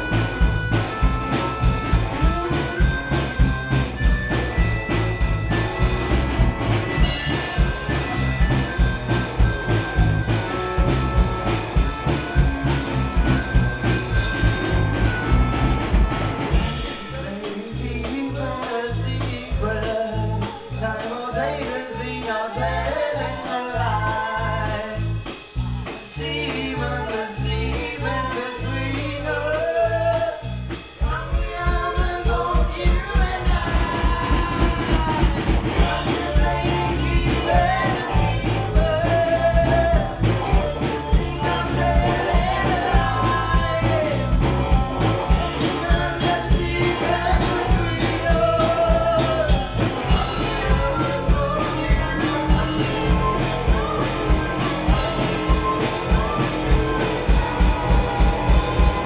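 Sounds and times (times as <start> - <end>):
accordion: 0.0 - 31.6, 32.6 - 59.0
bass: 0.0 - 59.0
drums: 0.0 - 59.0
guitar: 0.0 - 59.0
person singing: 31.0 - 59.0.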